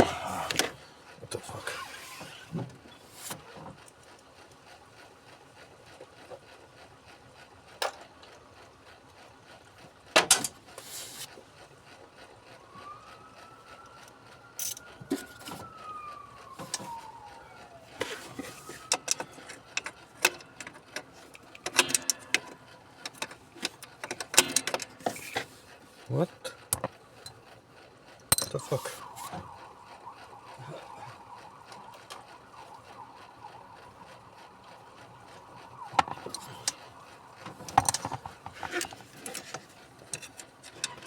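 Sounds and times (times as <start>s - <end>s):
tools and metal parts clicking: 14.6s - 15.5s, 18.3s - 25.5s, 28.2s - 28.8s, 37.4s - 41.0s.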